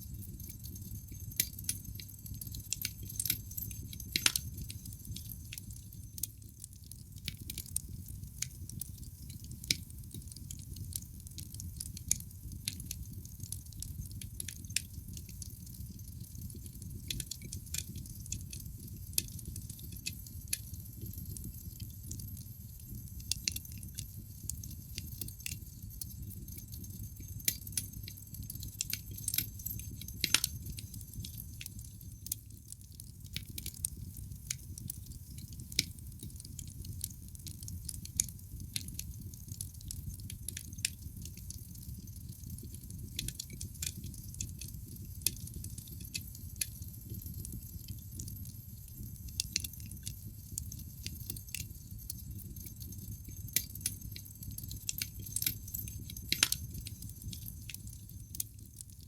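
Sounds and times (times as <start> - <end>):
low fire rumble: 0.0 - 59.0
wood fire crackling and popping: 0.0 - 59.0.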